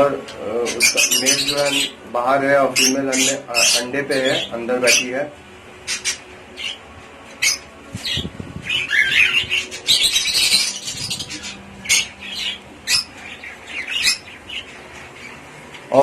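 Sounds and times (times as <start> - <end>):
budgerigars squawking and chirping: 0.3 - 2.0, 2.7 - 16.0.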